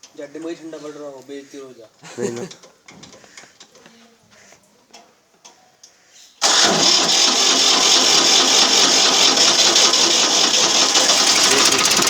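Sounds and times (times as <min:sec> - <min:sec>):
tractor diesel engine starting: 0:06.4 - 0:12.0.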